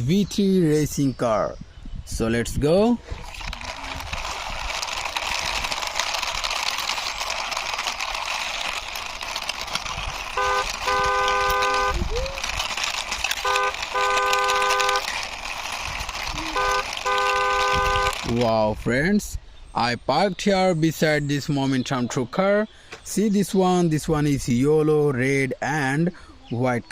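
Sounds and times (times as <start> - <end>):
car horn honking: 10.4 - 12.1, 13.4 - 15.0, 16.5 - 18.3.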